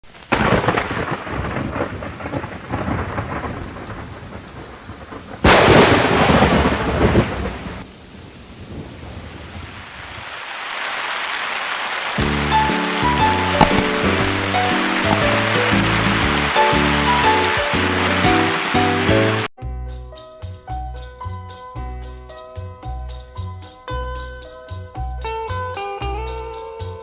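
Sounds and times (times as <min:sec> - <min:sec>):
steady rain: 0:00.0 - 0:19.5
thunder rumbling: 0:00.1 - 0:10.4, 0:12.2 - 0:19.5.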